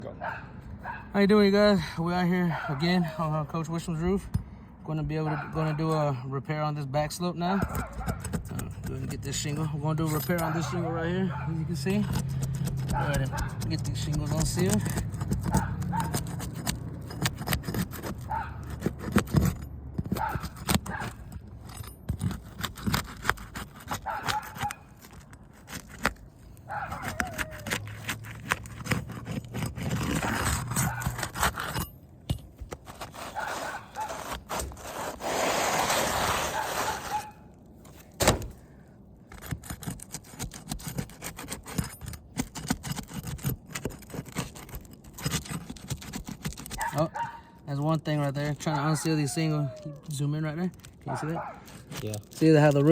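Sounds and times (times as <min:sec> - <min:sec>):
bar scraping under roof shingles: 0:07.5 - 0:48.8
short scrapes and clicks: 0:07.6 - 0:31.9, 0:32.6 - 0:38.7, 0:39.3 - 0:47.4, 0:48.1 - 0:52.9.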